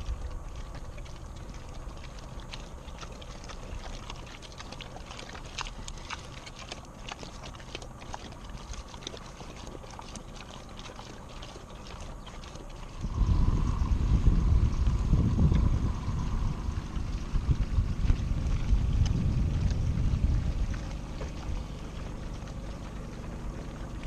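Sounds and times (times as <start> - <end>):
low rumble: 12.8 - 24.0.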